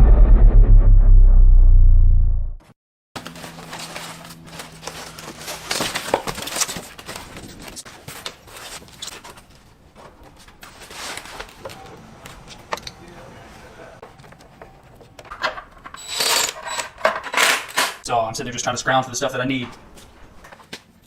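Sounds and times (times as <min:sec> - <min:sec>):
rustling: 0:03.2 - 0:11.9.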